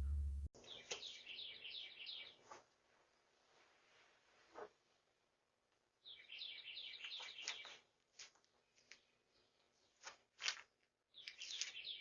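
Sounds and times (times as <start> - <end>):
faint bird chirping: 0.0 - 3.8, 6.0 - 7.9, 11.1 - 12.0.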